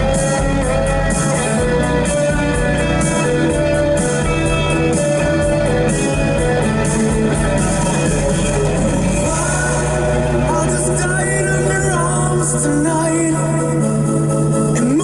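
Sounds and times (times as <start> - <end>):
music with guitar and beat: 0.0 - 15.0.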